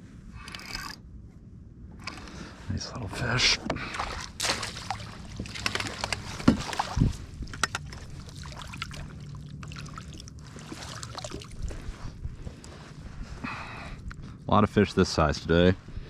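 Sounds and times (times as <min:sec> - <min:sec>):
low steady hum: 0:00.0 - 0:16.0
knocks and clicks of gear: 0:05.5 - 0:08.1.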